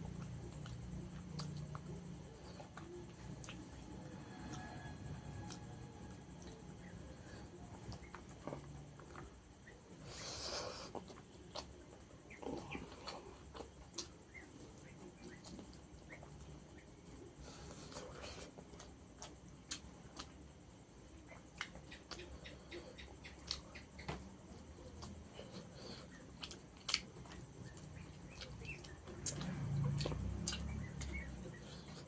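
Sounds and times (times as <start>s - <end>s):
chewing mouth sounds: 0.0s - 3.8s, 23.2s - 32.0s.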